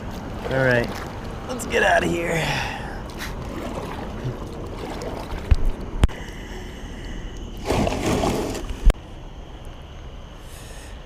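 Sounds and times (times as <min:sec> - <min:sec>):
paddle splashing water: 0:00.0 - 0:06.4, 0:07.5 - 0:08.9.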